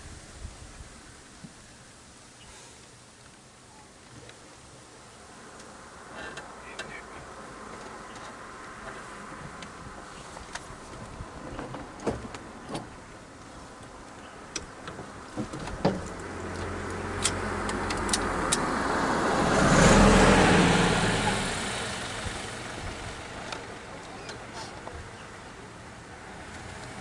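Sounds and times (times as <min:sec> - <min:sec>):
vehicle passing by: 0:16.1 - 0:27.0.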